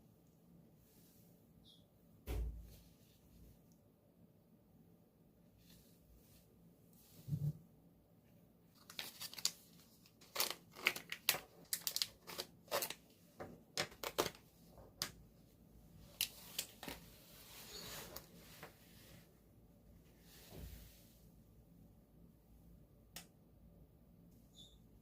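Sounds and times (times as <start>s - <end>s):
plastic packaging crinkling: 8.8s - 13.0s, 13.7s - 14.4s.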